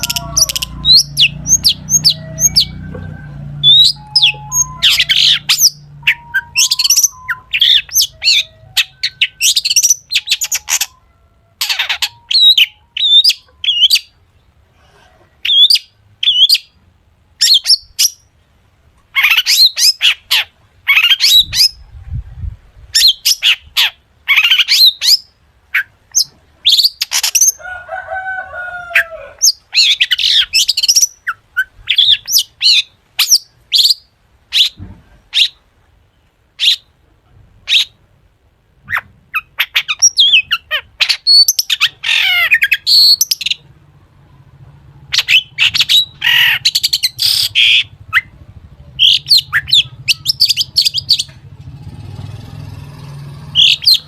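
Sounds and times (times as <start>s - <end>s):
bird chattering and whistling song: 0.0s - 14.5s, 15.4s - 16.8s, 17.4s - 18.3s, 19.1s - 21.9s, 23.0s - 27.6s, 29.4s - 35.6s, 36.6s - 36.9s, 38.8s - 43.8s, 45.0s - 51.4s, 53.5s - 54.0s.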